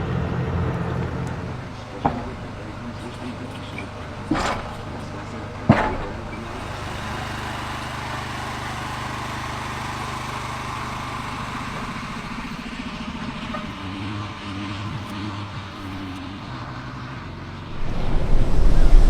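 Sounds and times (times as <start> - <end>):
engine humming: 0.0 - 19.0
hiss: 17.7 - 19.0.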